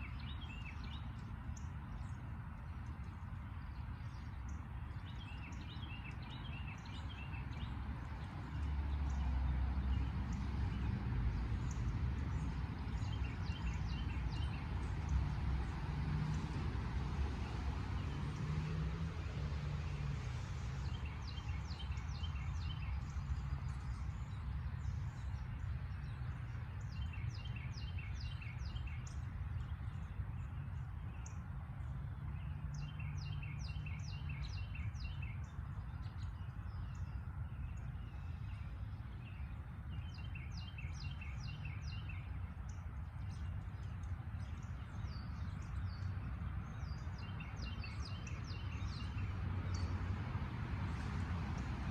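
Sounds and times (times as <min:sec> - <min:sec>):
songbird singing: 0:00.0 - 0:51.9.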